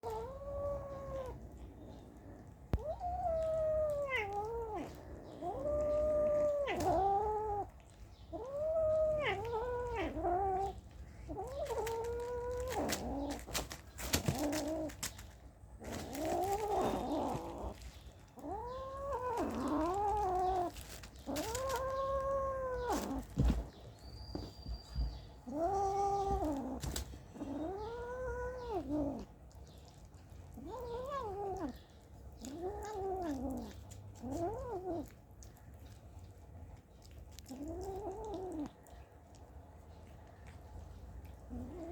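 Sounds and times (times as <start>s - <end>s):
kitten meowing: 0.0s - 1.4s, 2.7s - 7.7s, 8.3s - 13.5s, 18.4s - 29.3s, 30.5s - 31.8s, 32.4s - 35.1s.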